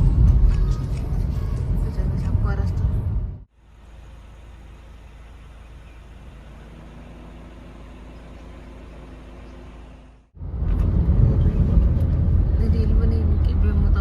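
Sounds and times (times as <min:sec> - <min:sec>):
car engine rumbling: 0:00.0 - 0:14.0.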